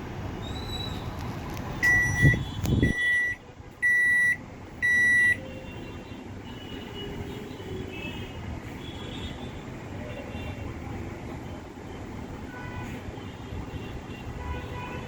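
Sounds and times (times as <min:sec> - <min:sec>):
microwave beeps: 0:01.8 - 0:05.4.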